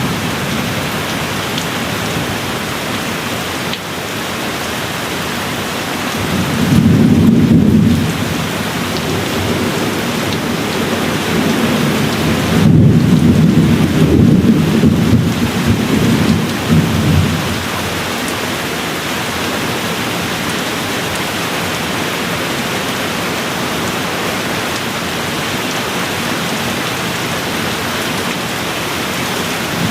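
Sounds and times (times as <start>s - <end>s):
steady rain falling: 0.0s - 29.9s
distant thunder rolling: 6.2s - 18.1s.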